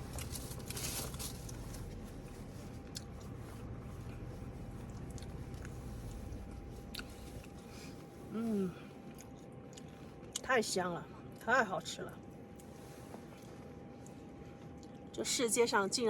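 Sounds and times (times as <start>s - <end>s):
person chewing meat: 0.0s - 8.1s, 8.9s - 10.4s, 12.4s - 15.1s.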